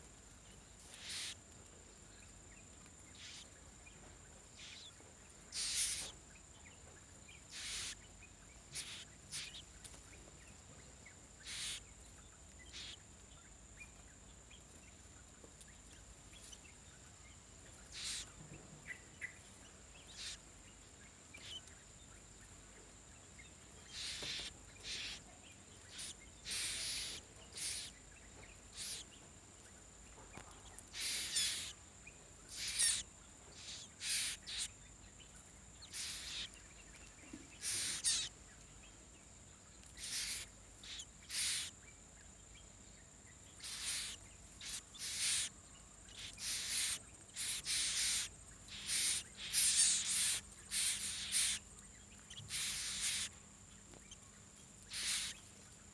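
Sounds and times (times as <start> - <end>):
nestling bird raspy calls: 0.9 - 1.4, 3.2 - 3.5, 4.6 - 4.9, 5.5 - 6.1, 7.5 - 8.0, 8.7 - 9.6, 11.4 - 11.8, 12.7 - 13.0, 17.9 - 18.3, 20.1 - 20.4, 21.4 - 21.6, 23.8 - 28.0, 28.7 - 29.2, 30.9 - 31.8, 32.5 - 34.8, 35.8 - 36.6, 37.5 - 38.4, 40.0 - 41.7, 43.6 - 53.4, 54.9 - 55.4.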